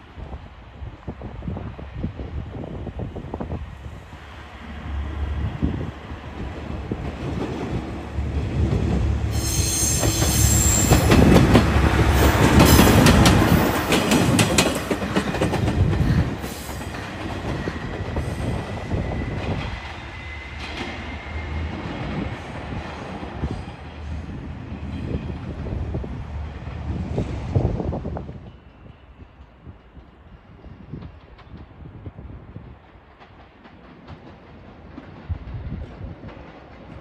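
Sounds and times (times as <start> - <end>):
train passing: 0.0 - 37.0
train wheels squealing: 9.2 - 11.5, 16.0 - 22.7, 28.2 - 30.6.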